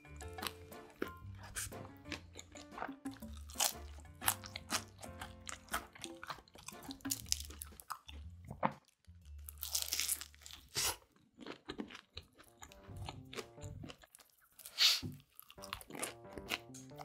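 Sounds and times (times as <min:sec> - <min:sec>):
crunching and chewing pizza: 0:00.2 - 0:17.0.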